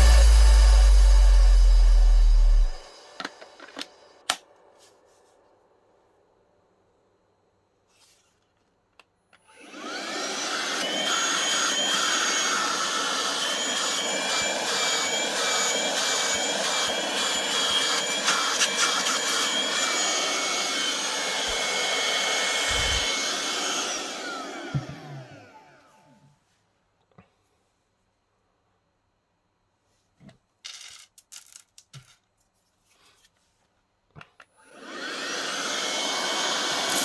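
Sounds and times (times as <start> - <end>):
handheld vacuum cleaner whine: 0.0 - 4.3, 9.4 - 26.3, 34.5 - 37.0.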